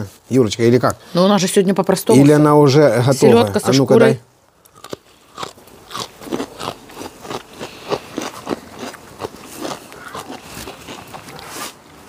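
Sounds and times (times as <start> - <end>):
person chewing crunchy food: 4.6 - 12.0.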